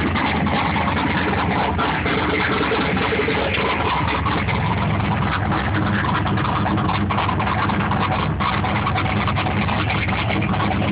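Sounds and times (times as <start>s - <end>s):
car engine idling: 0.0s - 10.9s.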